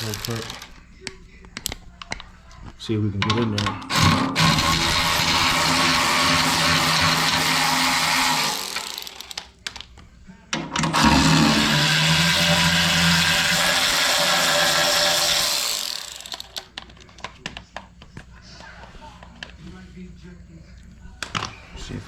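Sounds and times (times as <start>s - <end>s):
power drill running: 0.0s - 0.7s, 3.9s - 9.4s, 10.8s - 16.7s
tool and bolts clicking: 0.0s - 0.8s, 8.2s - 9.9s, 15.0s - 17.3s.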